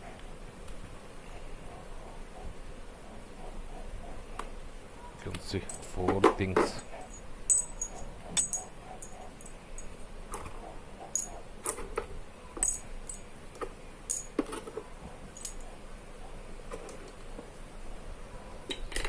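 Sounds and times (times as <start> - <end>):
metal screwdriver bits clinking: 5.4 - 9.9, 11.1 - 11.8, 12.6 - 13.3, 14.1 - 14.7, 15.3 - 15.7.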